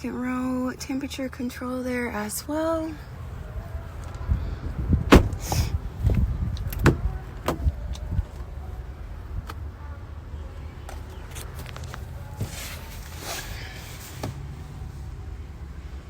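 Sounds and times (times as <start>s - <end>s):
low steady rumble: 0.0s - 16.0s
clicks and knocks in car cabin: 5.1s - 8.5s.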